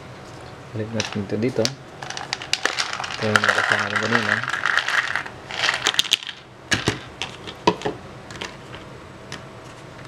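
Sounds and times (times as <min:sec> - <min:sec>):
beans rattling into plastic container: 0:02.0 - 0:07.6.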